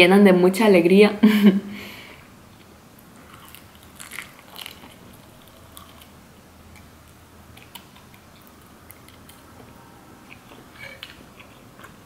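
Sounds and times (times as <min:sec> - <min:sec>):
person chewing food: 0:02.5 - 0:12.0.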